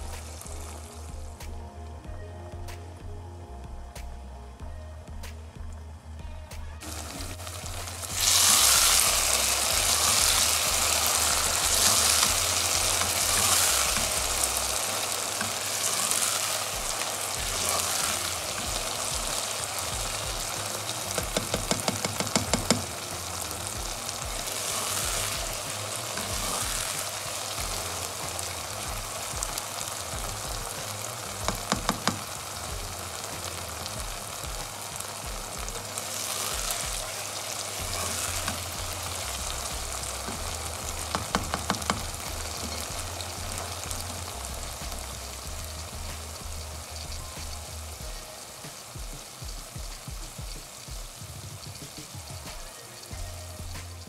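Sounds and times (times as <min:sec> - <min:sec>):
vegetables sizzling in oil: 0:00.0 - 0:02.8, 0:06.8 - 0:54.0.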